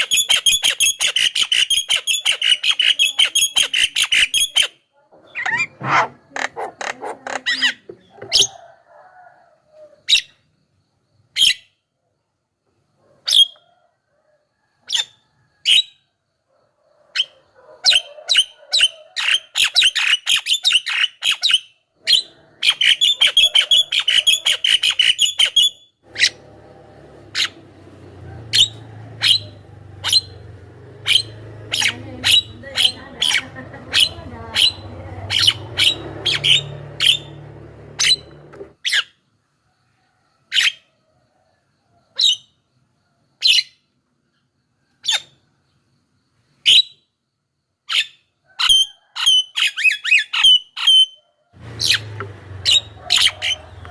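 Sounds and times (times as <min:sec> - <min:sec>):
myna calling: 0:05.1 - 0:08.5, 0:22.0 - 0:38.8, 0:51.6 - 0:53.9.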